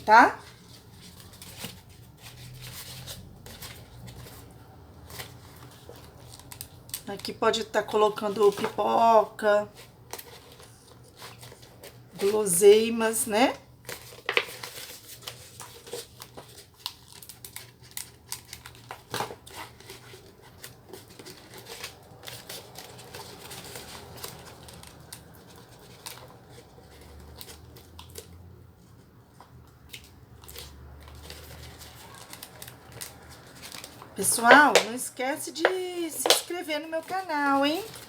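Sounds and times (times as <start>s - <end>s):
plastic bottle crinkling: 0.0s - 9.0s, 13.7s - 28.4s, 29.3s - 38.0s
clicks and rustles of crafting: 0.4s - 9.0s, 9.7s - 12.5s, 13.8s - 38.0s.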